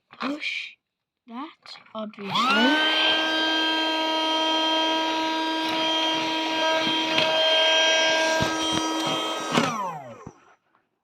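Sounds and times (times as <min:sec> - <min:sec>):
vacuum cleaner motor whining: 0:02.2 - 0:10.5.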